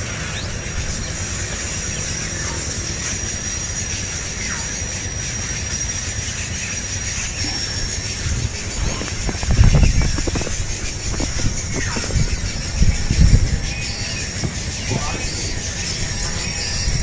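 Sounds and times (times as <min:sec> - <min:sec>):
high-pitched whine: 0:00.0 - 0:17.0
low rumble: 0:07.6 - 0:17.0.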